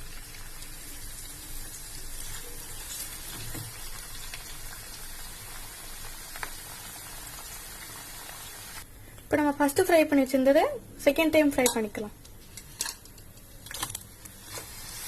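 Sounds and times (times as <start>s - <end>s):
potatoes sizzling in hot oil: 0.0s - 8.8s, 13.7s - 15.0s.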